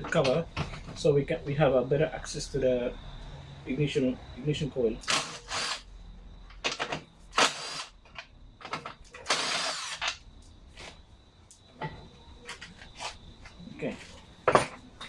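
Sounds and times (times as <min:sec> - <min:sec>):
cordless drill backing out screws: 0:08.6 - 0:10.2.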